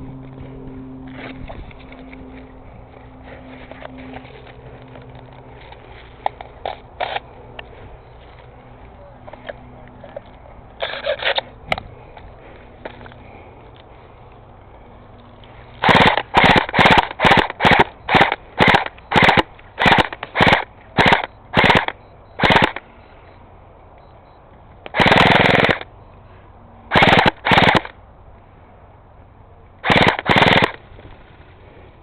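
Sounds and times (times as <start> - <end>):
airsoft rifle firing bursts: 15.8 - 22.9, 24.9 - 25.9, 26.9 - 28.0, 29.8 - 30.8.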